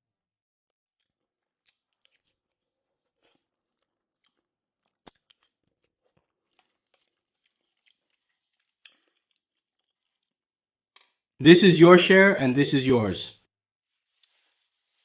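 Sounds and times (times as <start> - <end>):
faint chewing: 1.0 - 11.3, 13.8 - 15.0.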